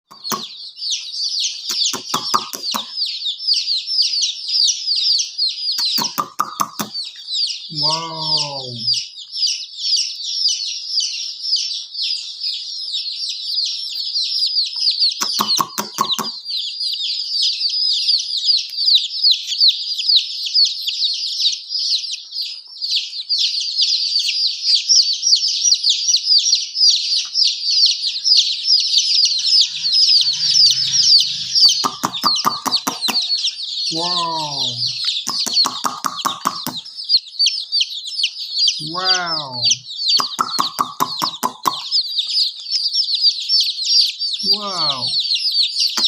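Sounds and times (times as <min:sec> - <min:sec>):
baby chicks peeping: 0:00.0 - 0:46.0
low pulsed clucking call: 0:29.2 - 0:33.5.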